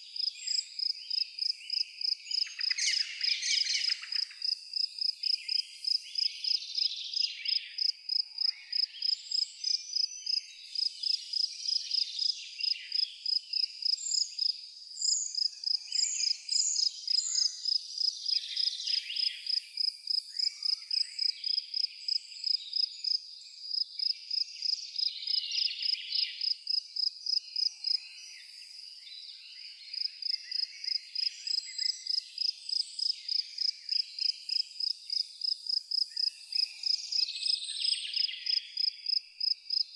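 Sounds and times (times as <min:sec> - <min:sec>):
bird calls and twitters: 0:00.0 - 0:04.5
cricket chirping: 0:00.0 - 0:39.9.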